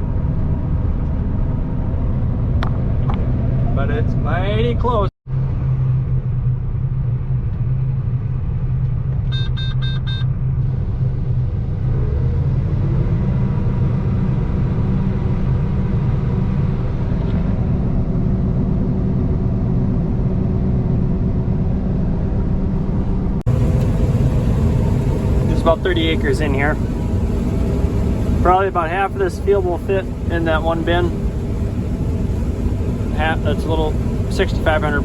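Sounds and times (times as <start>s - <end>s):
combine harvester engine drone: 0.0s - 35.0s
short electronic beeps: 9.4s - 10.3s.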